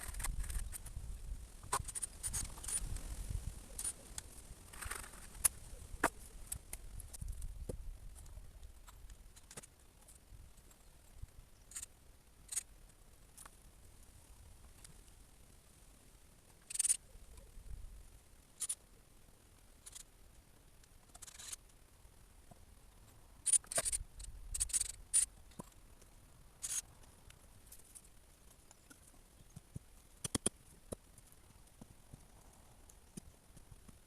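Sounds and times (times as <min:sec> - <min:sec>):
scrapes and rustles: 0:00.0 - 0:10.8
sharp clicks: 0:23.4 - 0:25.8, 0:29.5 - 0:31.1.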